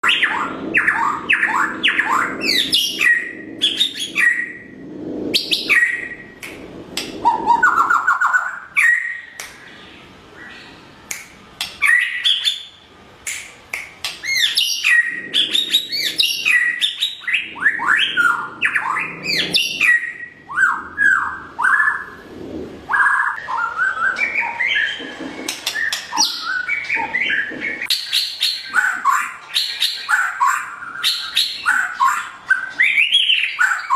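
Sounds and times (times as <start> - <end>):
bird singing whistled phrases and trills: 5.4 - 6.3, 7.2 - 9.8, 11.8 - 12.8, 14.2 - 22.2, 22.9 - 33.9.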